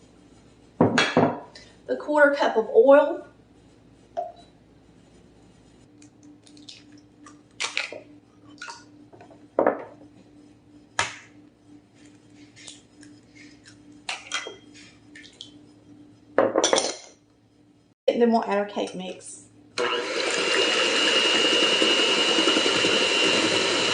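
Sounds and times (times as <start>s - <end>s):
dishes and utensils clinking: 14.1s - 15.0s, 16.4s - 17.2s.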